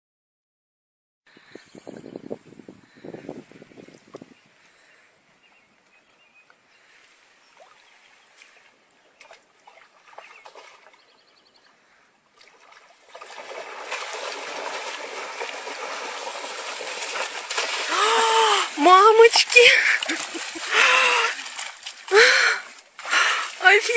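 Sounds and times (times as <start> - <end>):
water splashing: 6.9 - 11.2, 12.3 - 23.9.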